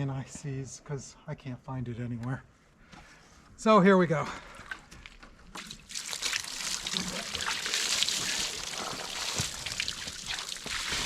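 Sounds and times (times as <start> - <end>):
water splashing from bucket: 5.5 - 11.0.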